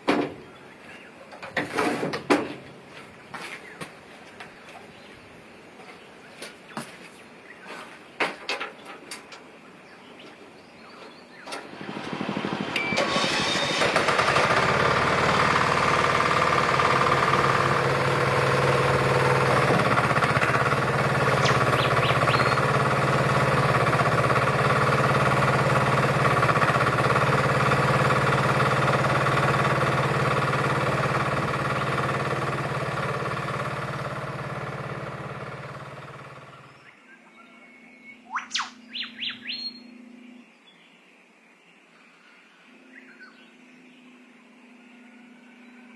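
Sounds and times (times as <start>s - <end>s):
diesel engine running: 11.6s - 36.7s.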